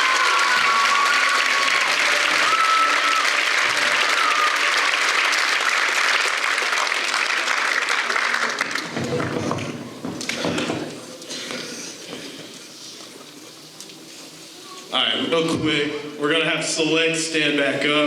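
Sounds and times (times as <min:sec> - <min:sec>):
high whistles: 0:00.0 - 0:03.4
audience applauding: 0:00.0 - 0:09.7.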